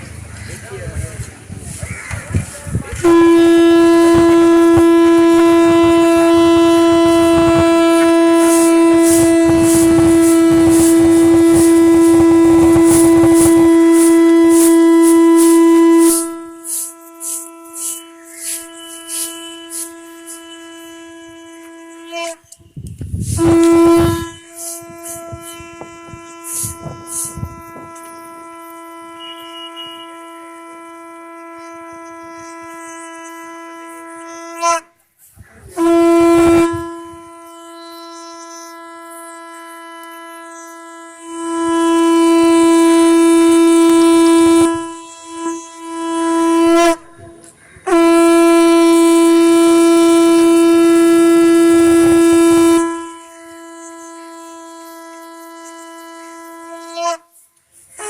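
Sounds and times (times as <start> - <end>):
conch shell blasts: 2.8 - 34.9, 35.7 - 58.0.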